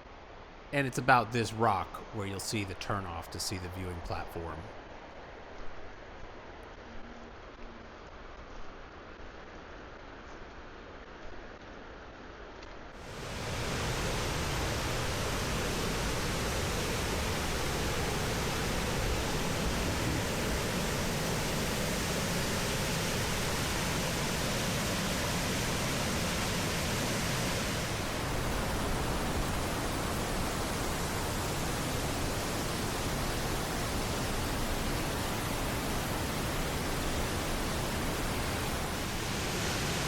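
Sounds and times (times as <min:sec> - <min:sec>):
whitewater rushing: 0:13.0 - 0:40.0.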